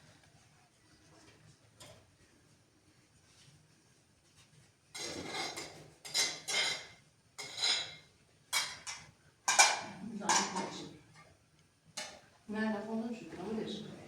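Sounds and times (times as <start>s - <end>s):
dishes and cutlery clattering: 5.0s - 10.8s.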